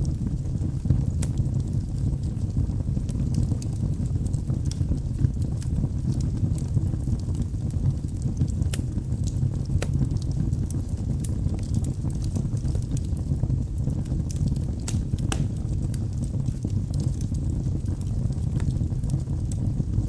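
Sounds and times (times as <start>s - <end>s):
fire rumbling: 0.0s - 20.0s
logs crackling and popping: 0.0s - 20.0s.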